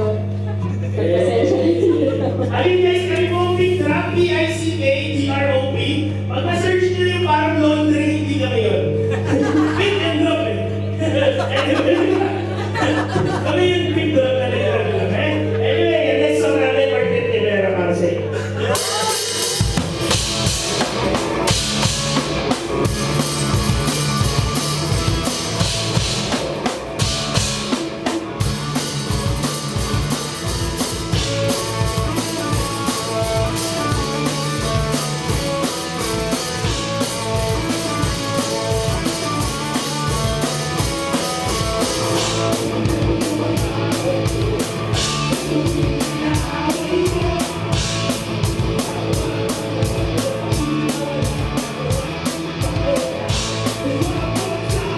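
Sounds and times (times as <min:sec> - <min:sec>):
drums up close: 0:18.7 - 0:54.9
live rock band playing: 0:18.7 - 0:54.9.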